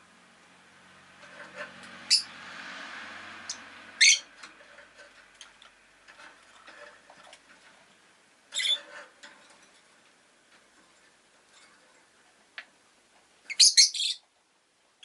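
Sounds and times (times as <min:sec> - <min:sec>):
passing vehicle: 0:00.1 - 0:07.6
lovebird sharp chirps: 0:03.5 - 0:04.2, 0:13.5 - 0:14.2.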